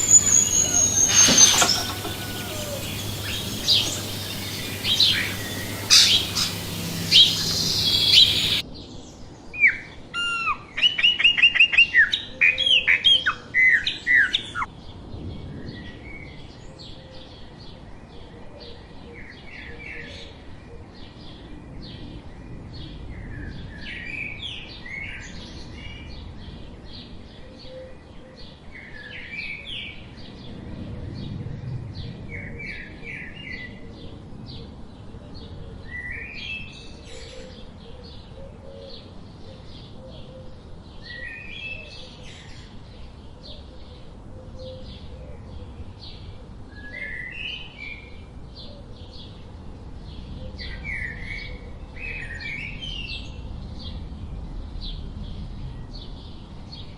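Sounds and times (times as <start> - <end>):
rapid high bird chirps: 0.0 - 8.6
songbird repeating song phrase: 0.0 - 8.6.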